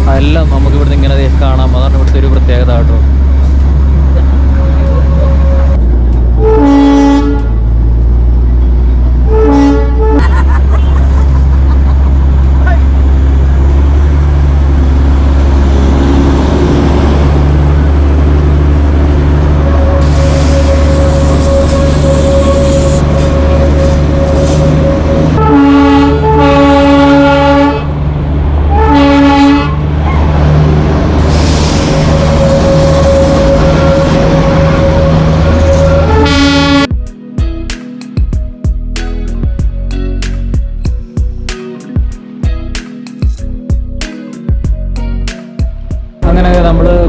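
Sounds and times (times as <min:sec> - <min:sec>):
train rumbling: 0:00.0 - 0:37.1, 0:38.2 - 0:47.0
train whistle blasts: 0:19.8 - 0:27.8, 0:31.8 - 0:36.9.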